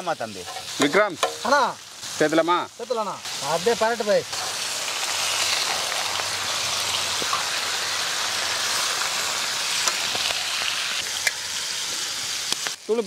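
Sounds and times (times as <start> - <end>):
chicken livers sizzling in oil: 0.0 - 13.0
small oil pops: 12.5 - 12.8.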